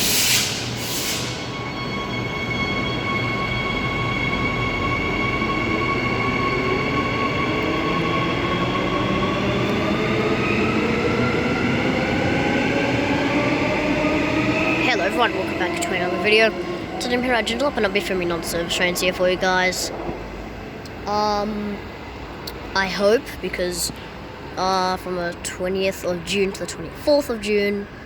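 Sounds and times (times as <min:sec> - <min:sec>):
short hissing bursts: 0:00.0 - 0:01.4
electric train drive whine: 0:00.0 - 0:24.6.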